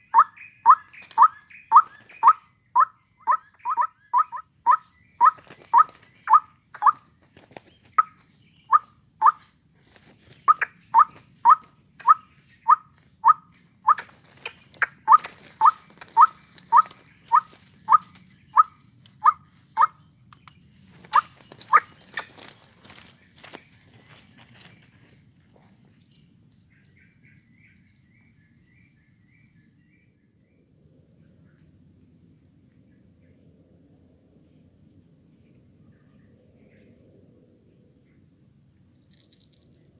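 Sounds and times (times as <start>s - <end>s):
bird croaking: 0.0s - 24.2s
insects buzzing: 0.0s - 39.9s.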